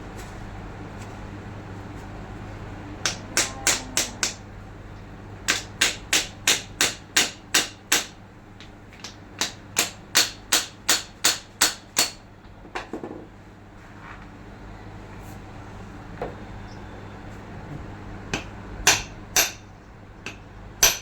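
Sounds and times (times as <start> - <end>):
hammer tapping on metal: 3.0 - 4.4, 5.5 - 8.2, 18.4 - 19.7, 20.3 - 21.0.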